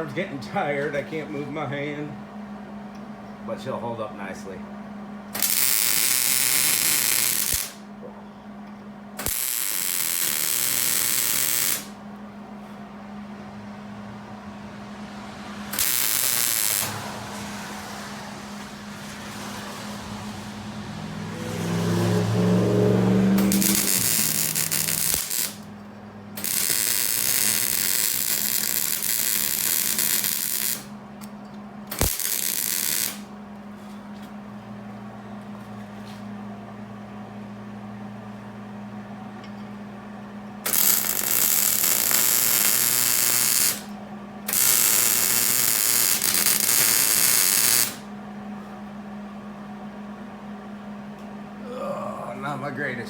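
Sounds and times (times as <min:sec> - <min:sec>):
steady low hum: 0:00.0 - 0:53.0
welder arc crackling: 0:05.4 - 0:07.8, 0:09.2 - 0:12.0, 0:15.7 - 0:17.1, 0:23.4 - 0:25.7, 0:26.4 - 0:30.9, 0:31.9 - 0:33.3, 0:40.7 - 0:48.0.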